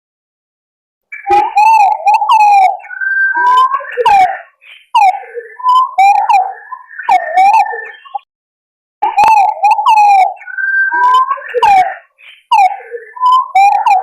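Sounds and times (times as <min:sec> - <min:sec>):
pigeons warbling whistles: 0:01.1 - 0:08.2, 0:09.0 - 0:14.0.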